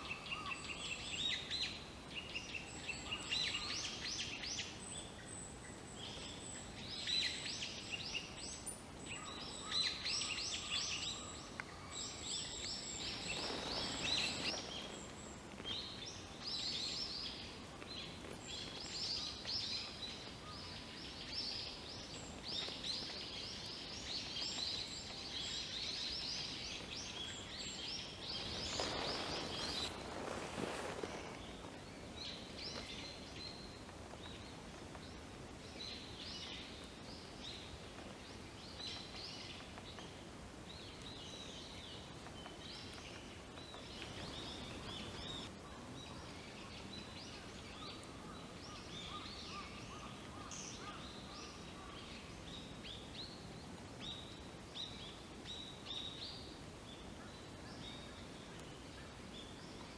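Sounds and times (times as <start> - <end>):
small birds chirping: 0.0 - 59.9
rustling noise: 12.6 - 16.8, 26.8 - 35.0, 42.2 - 45.5.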